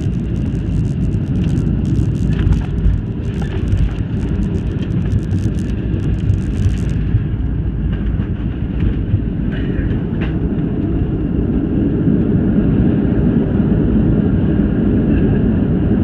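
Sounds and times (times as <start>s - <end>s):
fast crackling rattle: 0.0s - 7.2s
airliner cabin engine rumble: 0.0s - 16.0s.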